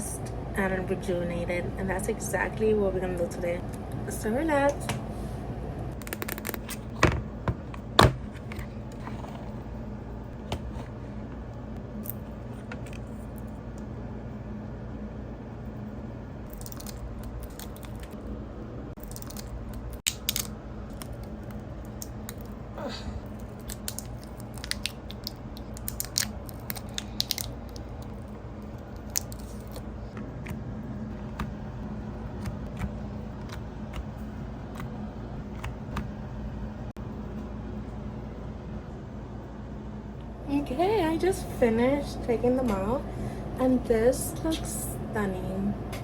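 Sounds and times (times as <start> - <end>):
steady low hum: 0.0 - 46.0
clicks and crinkly handling noises: 23.3 - 30.6.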